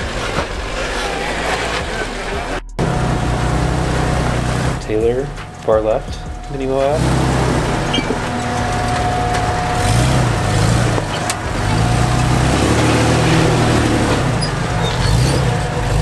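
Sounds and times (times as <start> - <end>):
off-road engine revving: 0.0 - 16.0
thin steady whine: 0.8 - 16.0.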